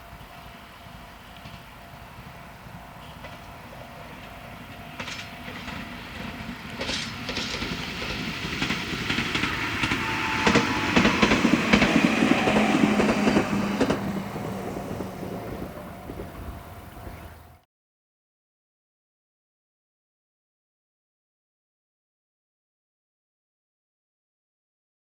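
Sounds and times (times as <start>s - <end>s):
steady train hum: 0.0s - 17.6s
train wheels clacking over rail joints: 3.0s - 17.2s.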